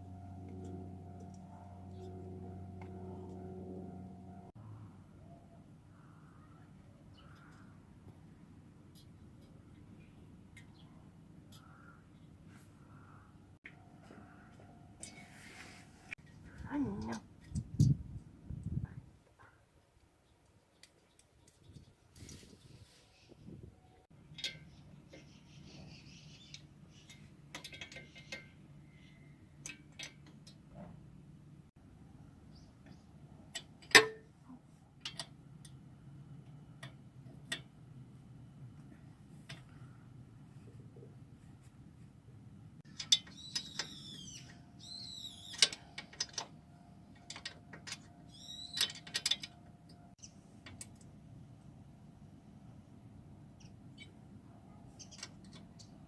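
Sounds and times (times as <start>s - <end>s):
low steady hum: 0.0s - 19.2s
metallic clicks and taps of tools: 26.5s - 28.6s, 29.6s - 30.6s, 35.0s - 35.8s, 36.4s - 37.8s, 47.2s - 48.1s, 48.8s - 50.0s, 50.6s - 51.1s
metallic clicks of tools: 26.5s - 28.6s, 47.2s - 49.6s.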